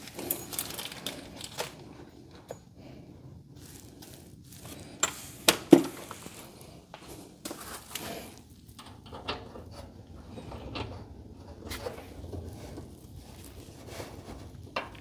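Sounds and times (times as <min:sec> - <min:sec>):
tools and metal hinges clicking: 0:00.0 - 0:01.8.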